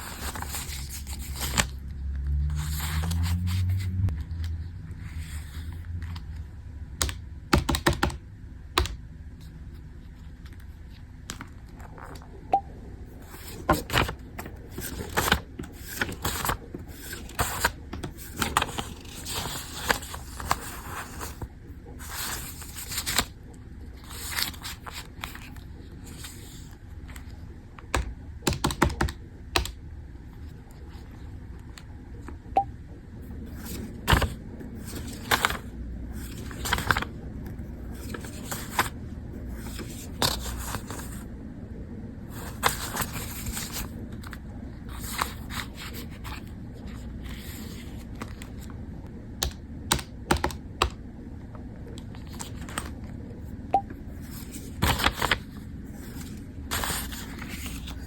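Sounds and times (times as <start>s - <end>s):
low hum rising in pitch: 1.8s - 6.9s.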